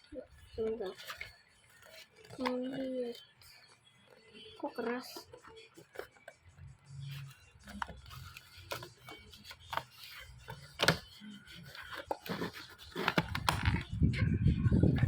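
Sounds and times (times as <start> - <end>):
rumbling handling noise: 7.1 - 15.0
plastic case clicks and rubbing: 7.2 - 13.9.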